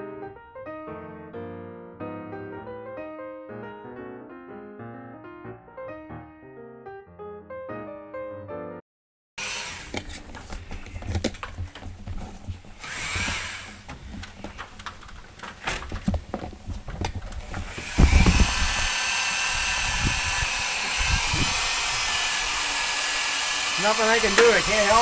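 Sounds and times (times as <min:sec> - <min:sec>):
electric drill running: 0:09.4 - 0:11.0, 0:12.7 - 0:14.4, 0:17.4 - 0:25.0.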